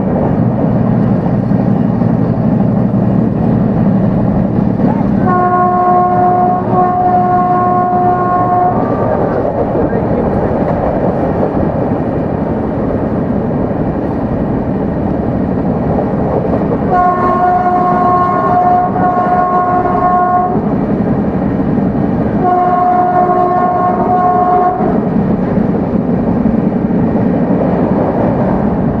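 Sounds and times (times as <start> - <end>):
train wheels rumbling on rails: 0.0 - 29.0
train horn blasts: 5.2 - 9.1, 16.9 - 20.7, 22.4 - 25.1.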